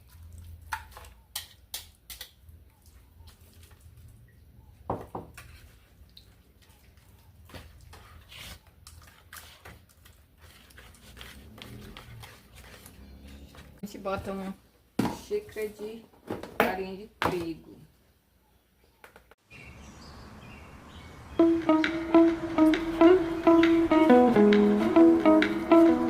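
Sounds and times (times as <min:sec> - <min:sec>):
wet mixing clicks and scrapes: 0:00.0 - 0:04.3, 0:05.3 - 0:13.8.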